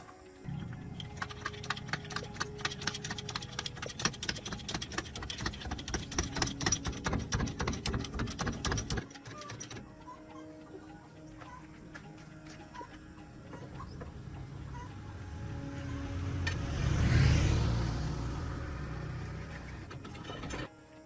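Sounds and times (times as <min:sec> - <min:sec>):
rapid mechanical clicking: 0:00.5 - 0:10.1.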